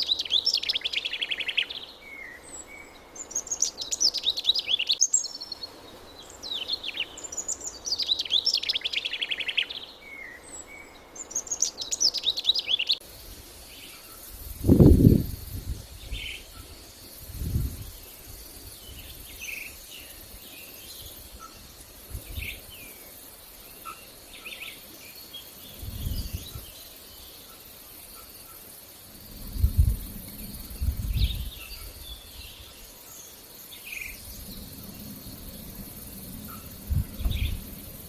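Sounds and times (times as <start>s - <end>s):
high insect trill: 10.5s - 38.0s
low rumbling wind: 13.0s - 23.8s, 25.5s - 27.4s, 29.0s - 38.0s.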